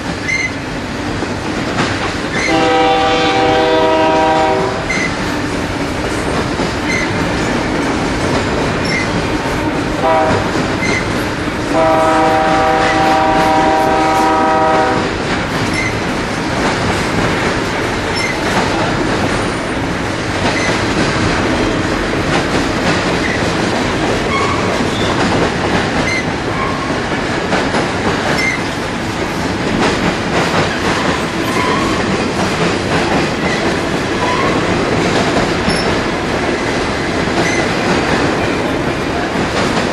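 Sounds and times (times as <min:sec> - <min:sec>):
freight train rumbling past: 0:00.0 - 0:39.9
wheels clattering on rail: 0:00.0 - 0:39.9
train air horn: 0:02.3 - 0:05.1, 0:09.6 - 0:10.7, 0:11.6 - 0:15.1.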